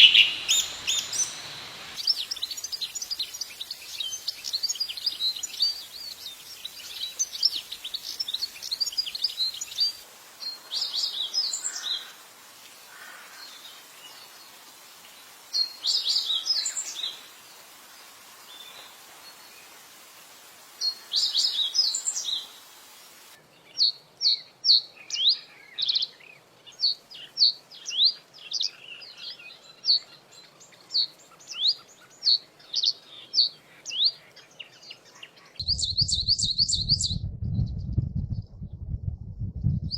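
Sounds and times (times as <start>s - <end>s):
songbirds chattering: 0.0s - 12.2s
bird repeating rising notes: 35.6s - 39.9s.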